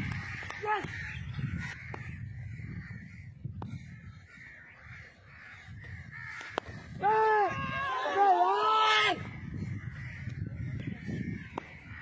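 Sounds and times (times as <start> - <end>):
bird giving harsh calls: 0.1 - 7.0.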